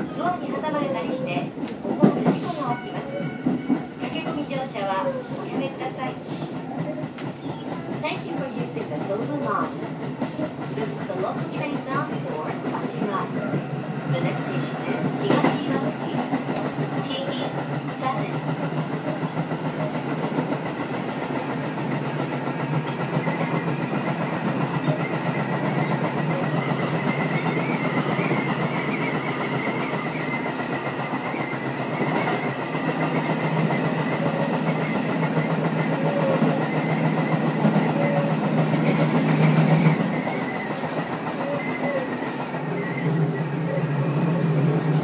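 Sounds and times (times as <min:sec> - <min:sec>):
train wheels rumbling on rail: 0:00.0 - 0:45.0
whistling wind noise: 0:21.4 - 0:45.0.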